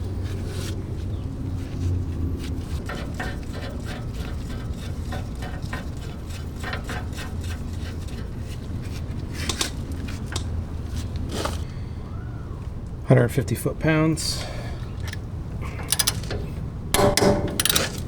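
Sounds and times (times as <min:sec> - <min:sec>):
hand tools knocking on metal: 0:15.9 - 0:18.0.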